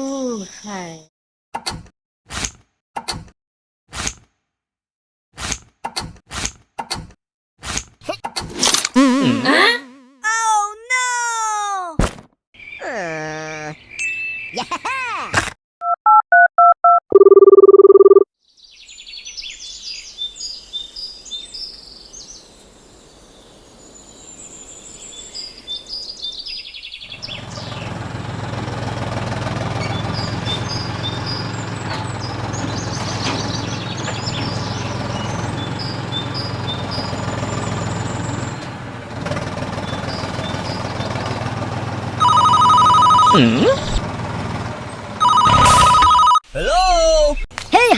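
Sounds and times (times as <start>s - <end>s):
birds chirping: 12.6s - 14.9s, 18.6s - 28.7s, 29.5s - 38.7s, 39.5s - 46.2s
electronic phone tone: 15.8s - 18.2s, 42.2s - 44.0s, 45.2s - 46.4s.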